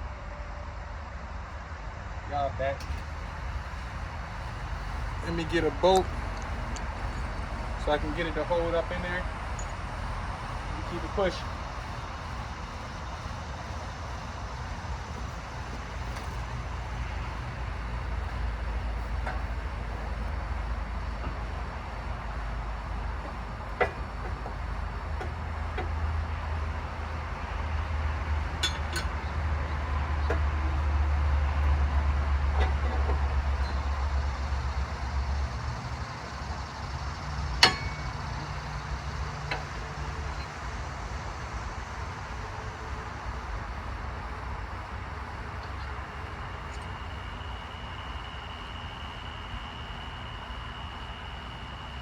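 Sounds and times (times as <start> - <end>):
low vehicle rumble: 0.0 - 52.0
metal tools clinking: 28.5 - 29.2.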